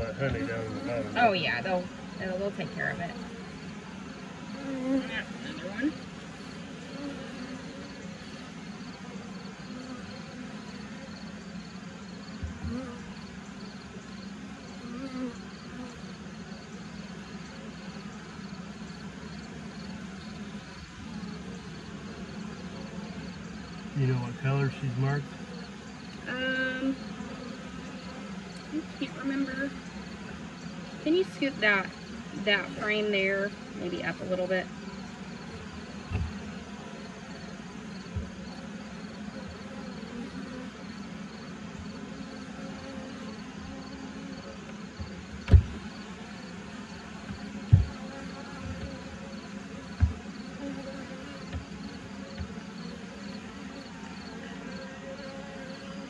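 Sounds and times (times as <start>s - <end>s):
bees buzzing: 0.0s - 56.0s
soft thump: 36.0s - 36.4s, 38.1s - 38.3s, 45.0s - 45.9s, 47.2s - 49.0s, 50.0s - 50.2s.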